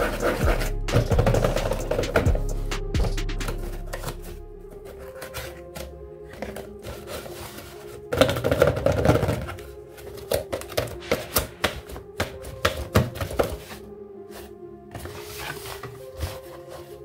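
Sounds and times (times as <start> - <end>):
cardboard rubbing and scraping: 0.0 - 2.5, 14.4 - 17.0
faint background music: 0.0 - 17.0
cardboard flaps clicking and tapping: 8.2 - 13.6.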